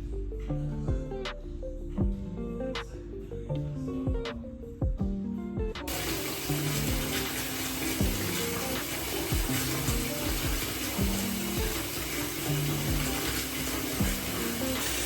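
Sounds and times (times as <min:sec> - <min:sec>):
soft piano music: 0:04.8 - 0:15.0
water running: 0:05.9 - 0:15.0.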